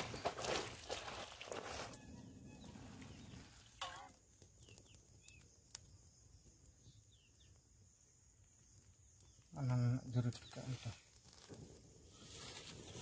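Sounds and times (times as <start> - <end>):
faint bird chirps: 1.6 - 7.7.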